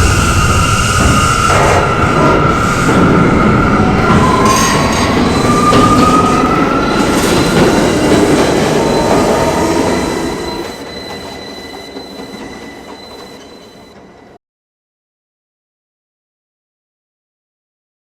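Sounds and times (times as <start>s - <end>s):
subway train wheels rumbling: 0.0s - 14.4s
train wheels squealing: 0.0s - 14.4s.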